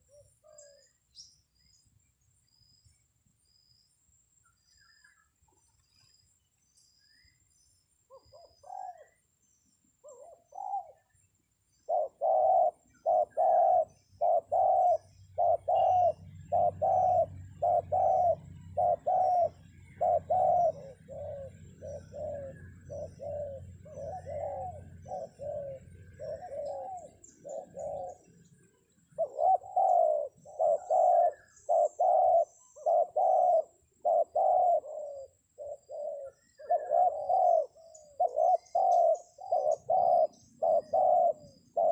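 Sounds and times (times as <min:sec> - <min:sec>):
small birds chirping: 0:00.0 - 0:41.9
dove cooing: 0:08.1 - 0:09.2, 0:10.0 - 0:11.2, 0:11.8 - 0:41.9.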